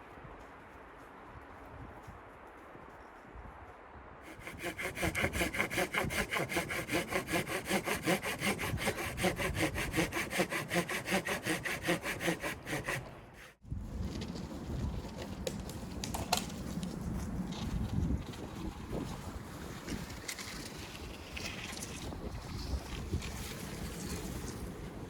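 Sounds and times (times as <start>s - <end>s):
hand saw cutting wood: 4.3s - 13.6s.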